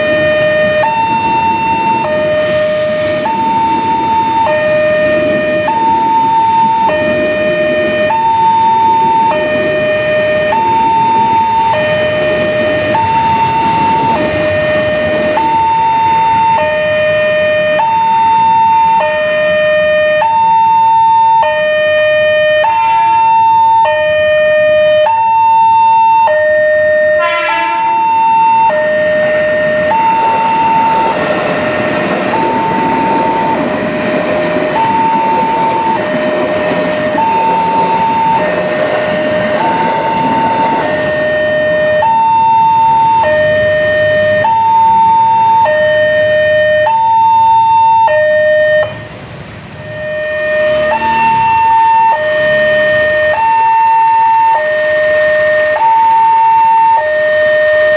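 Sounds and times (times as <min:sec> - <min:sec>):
two-tone level crossing alarm: 0:00.0 - 0:49.1, 0:49.7 - 0:57.9
rushing noise: 0:01.1 - 0:15.8, 0:48.9 - 0:57.9.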